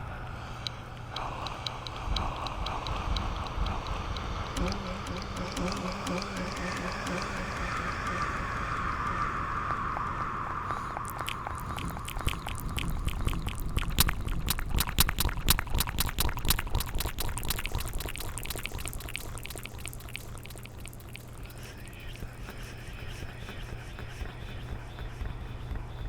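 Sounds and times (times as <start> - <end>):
wet tongue and lip clicks: 0.6 - 9.2, 9.9 - 22.6.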